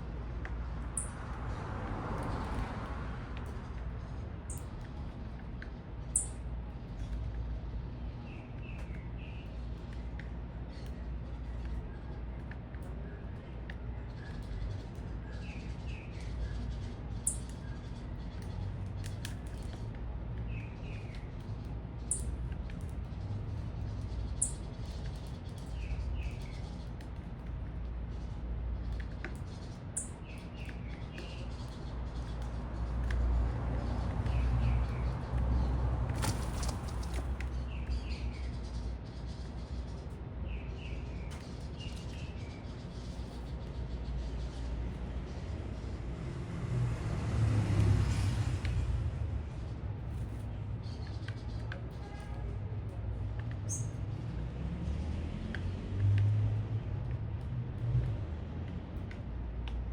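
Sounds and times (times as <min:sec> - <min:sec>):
city traffic rumble: 0:00.0 - 0:59.9
small birds calling: 0:00.9 - 0:01.2, 0:06.1 - 0:33.2, 0:53.4 - 0:54.1.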